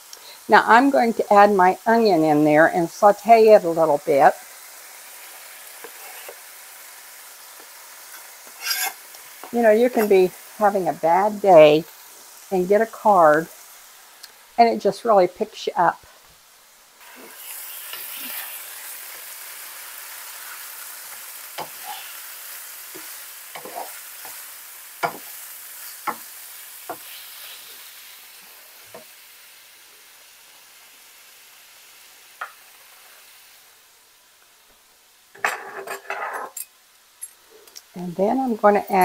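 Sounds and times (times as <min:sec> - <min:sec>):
food sizzling in a skillet: 0:00.0 - 0:39.0
wooden spoon scraping a pan: 0:05.8 - 0:06.5, 0:07.6 - 0:10.3, 0:21.6 - 0:22.2, 0:22.9 - 0:26.3, 0:35.4 - 0:36.6.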